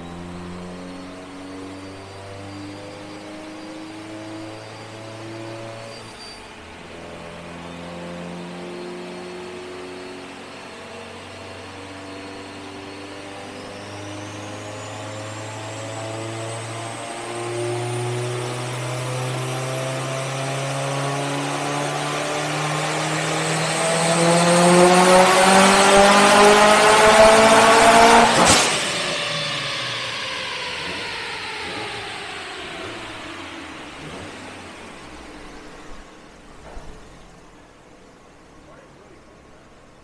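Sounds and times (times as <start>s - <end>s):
car engine at full throttle: 0.0s - 40.0s
high turbo whine: 0.0s - 40.0s
sharp exhaust crack: 23.4s - 37.6s.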